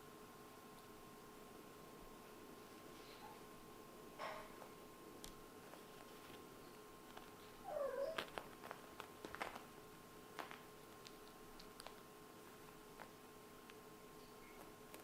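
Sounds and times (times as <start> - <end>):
kitten meowing: 7.7 - 8.3
light clicks and taps: 10.4 - 12.0.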